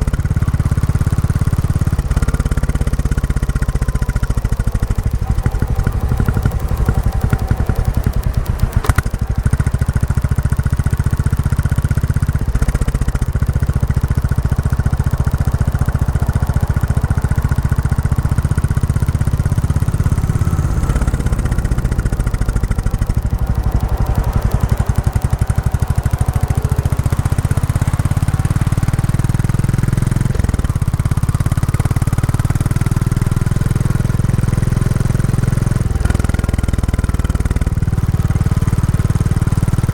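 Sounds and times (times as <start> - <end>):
motorcycle engine running: 0.0 - 39.9
sharp click: 5.8 - 9.2.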